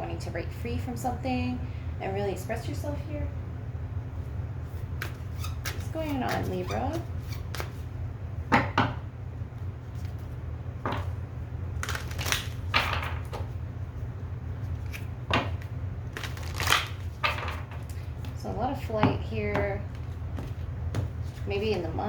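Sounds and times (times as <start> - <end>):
steady low hum: 0.0 - 22.0
cards sliding rustle: 4.7 - 6.5, 14.6 - 15.1.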